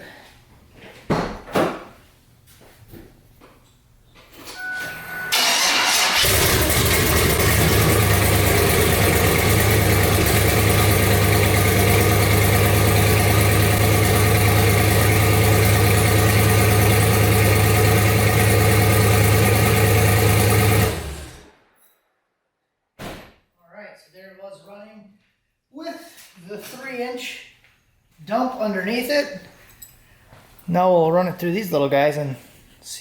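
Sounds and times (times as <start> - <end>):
car engine idling loudly: 5.9 - 21.4.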